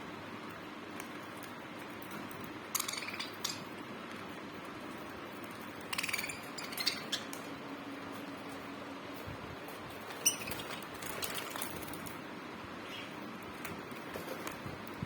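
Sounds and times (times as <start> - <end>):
small birds chirping: 1.0 - 3.8, 4.8 - 8.6, 9.8 - 15.0.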